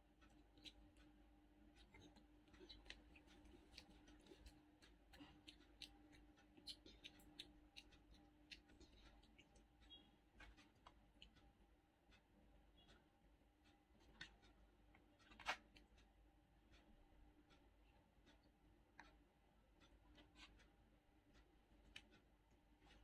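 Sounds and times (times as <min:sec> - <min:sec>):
child chewing crunchy food: 0:00.0 - 0:11.5
low steady hum: 0:00.0 - 0:23.0
soft clicks and crunches: 0:01.7 - 0:11.5, 0:13.6 - 0:16.1, 0:16.7 - 0:19.2, 0:19.8 - 0:23.0.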